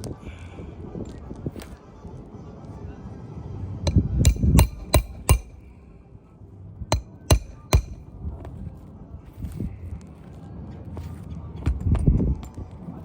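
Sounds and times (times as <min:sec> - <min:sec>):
hammer blows with metallic ring: 0:03.9 - 0:05.7, 0:06.9 - 0:08.0.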